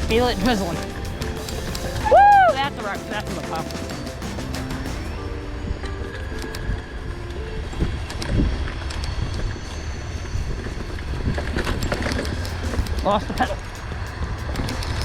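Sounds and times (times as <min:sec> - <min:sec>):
bike rattling and knocking: 0:00.0 - 0:05.2, 0:11.0 - 0:15.0.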